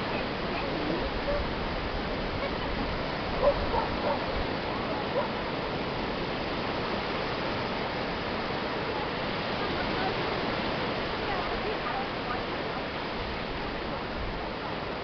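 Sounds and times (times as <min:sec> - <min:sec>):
surf rushing: 0:00.0 - 0:15.0
wind: 0:00.0 - 0:15.0.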